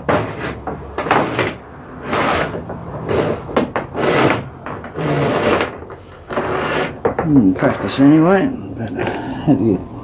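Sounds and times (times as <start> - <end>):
rope rasping through pulleys: 0.0 - 7.0.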